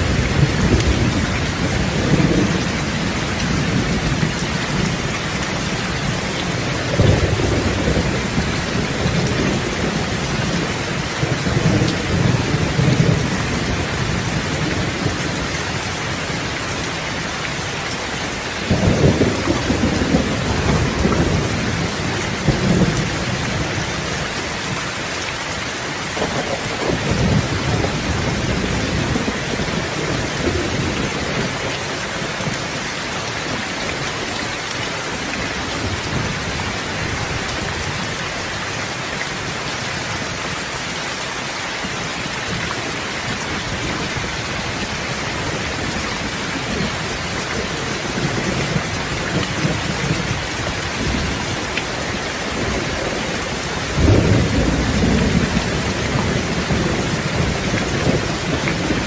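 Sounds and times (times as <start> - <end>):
thunder rumbling: 0.0 - 16.9, 18.6 - 24.8, 26.0 - 32.8, 42.5 - 59.0
steady rain: 0.0 - 59.0.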